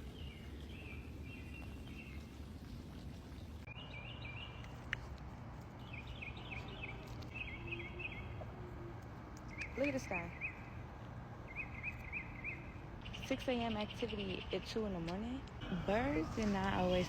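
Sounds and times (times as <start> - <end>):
bird chirping: 3.6 - 5.0, 5.8 - 8.4, 11.4 - 15.0.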